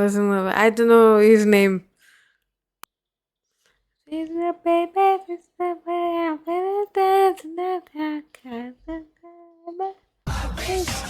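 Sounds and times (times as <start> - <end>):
person singing unaccompanied: 4.1 - 11.0.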